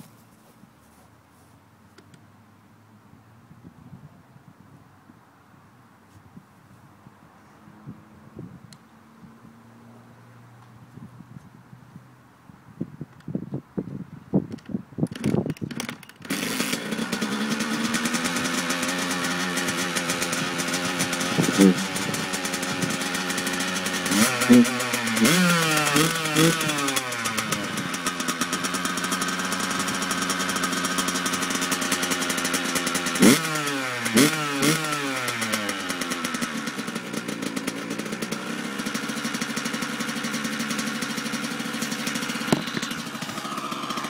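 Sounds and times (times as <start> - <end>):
engine throttle blips: 15.2 - 44.0
dirt bike engine idling: 15.6 - 44.0.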